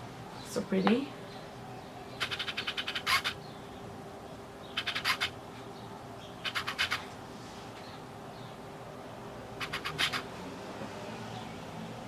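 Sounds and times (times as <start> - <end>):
faint steady hum: 0.0 - 12.0
rapid scratchy clicking: 2.2 - 3.4, 4.8 - 5.4, 6.4 - 7.0, 9.6 - 10.3.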